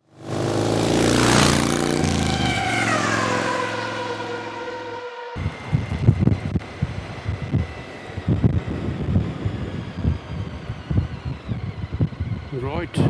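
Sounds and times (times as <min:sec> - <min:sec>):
vehicle engine passing by: 0:00.1 - 0:06.8.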